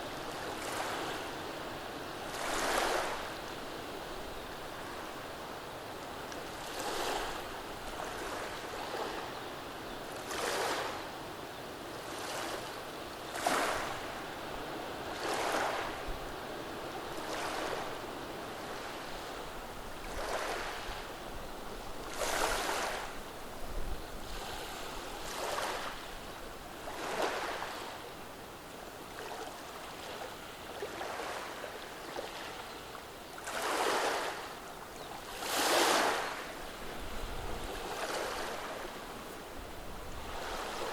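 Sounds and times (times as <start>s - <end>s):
waves washing over stones: 2.3s - 3.4s, 22.0s - 23.2s, 26.8s - 27.9s, 33.4s - 34.5s, 35.2s - 39.1s.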